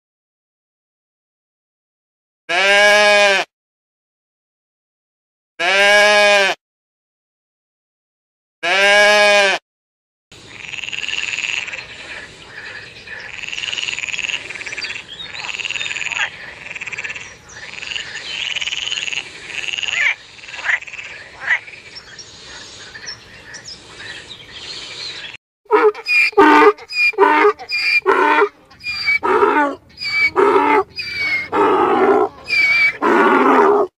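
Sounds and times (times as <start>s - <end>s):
goat bleating: 2.5s - 3.5s, 5.6s - 6.6s, 8.6s - 9.6s
frog croaking: 10.5s - 21.8s.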